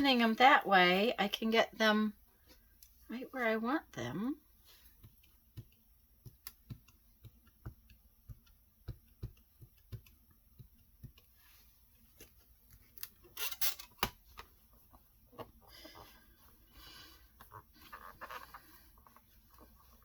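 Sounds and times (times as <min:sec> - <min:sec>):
stamps clicking and tapping on desk: 0:05.0 - 0:11.3.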